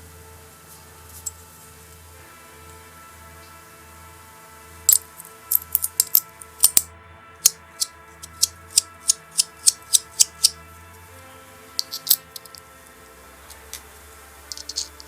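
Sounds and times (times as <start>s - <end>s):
background music: 0.0s - 15.0s
metal fidget toy clicking: 4.9s - 10.6s, 11.8s - 12.6s, 14.5s - 15.0s.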